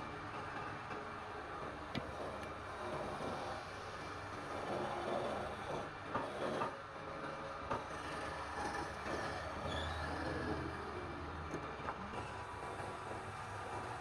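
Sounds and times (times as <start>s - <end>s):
tool grinding on wood: 2.0s - 3.6s, 4.5s - 6.7s.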